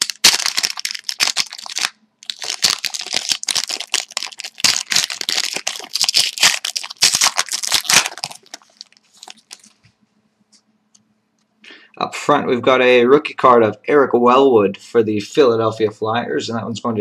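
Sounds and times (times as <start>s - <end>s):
foil wrapper tearing and crinkling: 0.0s - 9.8s.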